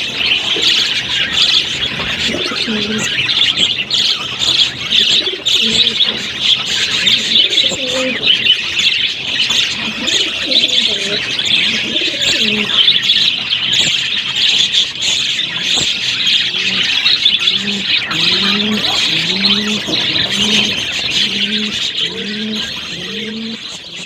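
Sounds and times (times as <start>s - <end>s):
budgerigars chattering and chirping: 0.0s - 24.0s
low cooing call: 7.0s - 8.5s, 9.8s - 12.8s, 16.2s - 24.0s.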